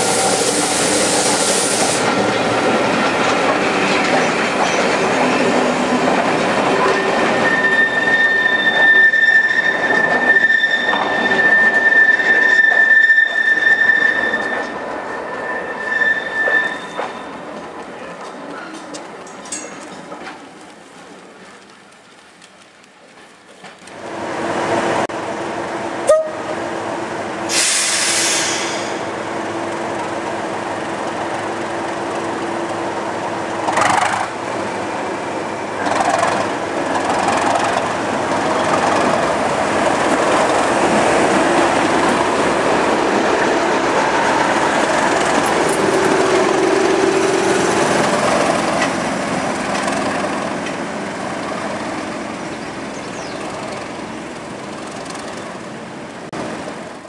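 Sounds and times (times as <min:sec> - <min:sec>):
train engine and running noise: 0:00.0 - 0:57.0
short hiss: 0:27.5 - 0:29.1.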